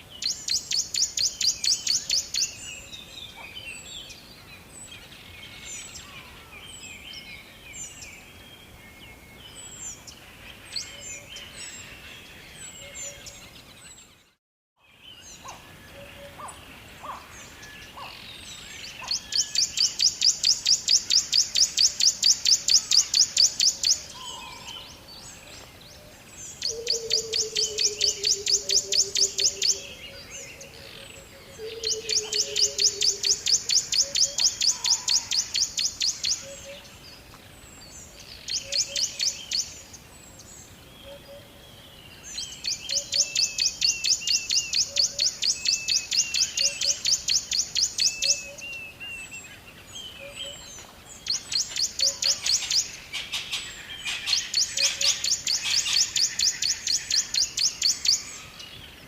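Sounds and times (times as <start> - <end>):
bird singing rapid trills: 26.5 - 30.5, 31.6 - 36.6, 42.3 - 49.4, 51.2 - 58.7.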